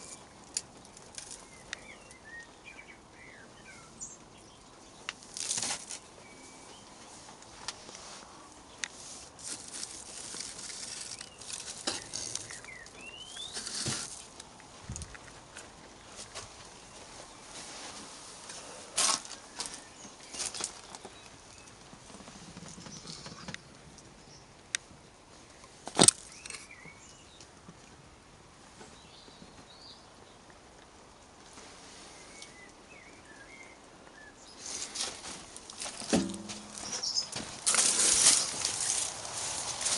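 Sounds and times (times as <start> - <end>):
dry rustling and crackling: 0.0 - 2.8, 5.0 - 24.1, 34.5 - 39.9
small birds chirping: 0.0 - 17.9, 18.5 - 27.6, 28.8 - 30.7, 32.0 - 39.9.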